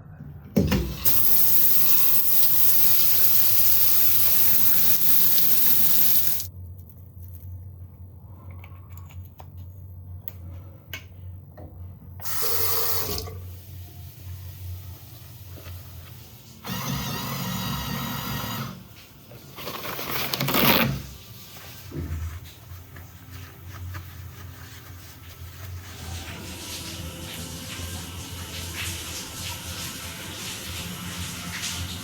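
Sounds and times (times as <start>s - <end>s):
water running from a tap: 1.0s - 6.5s, 12.2s - 13.5s.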